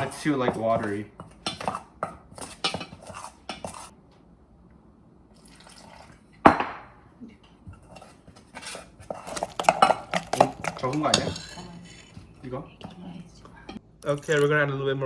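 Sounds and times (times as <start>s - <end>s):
utensil scraping a bowl: 0.0s - 4.0s, 7.7s - 14.5s
utensil knocking bowl: 7.7s - 14.5s.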